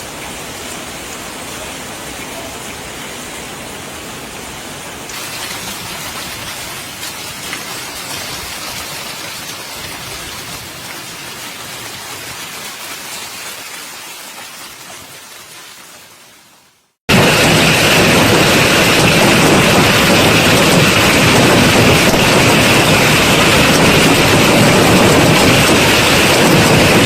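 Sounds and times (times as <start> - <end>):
rain and hail hissing: 0.0 - 27.0
hail impacts: 5.1 - 16.1, 17.1 - 27.0.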